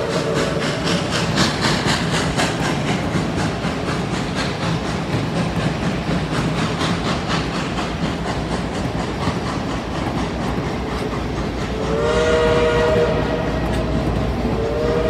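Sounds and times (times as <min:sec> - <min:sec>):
train wheels clicking over rail joints: 0:00.0 - 0:15.0.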